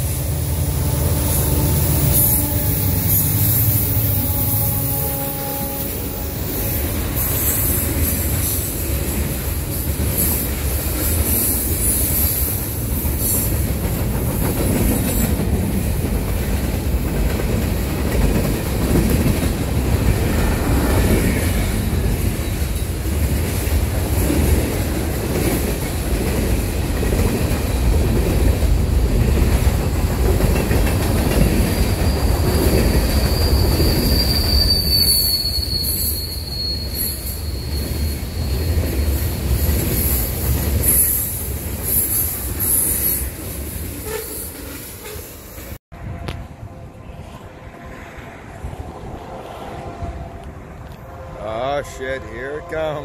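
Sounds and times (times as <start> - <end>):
freight train wheels rumbling: 0.0 - 53.0
high wheel squeal: 0.5 - 8.8, 31.6 - 43.3.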